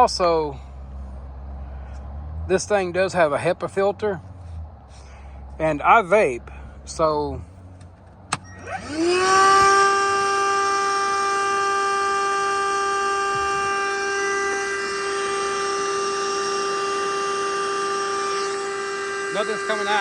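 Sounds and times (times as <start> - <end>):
vacuum cleaner motor whine: 8.6 - 20.0.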